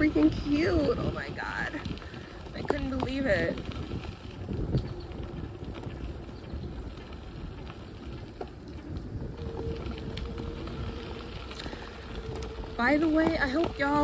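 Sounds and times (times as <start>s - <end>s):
bicycle rolling on dirt trail: 0.0s - 14.0s
bike rattles and clicks: 0.0s - 14.0s.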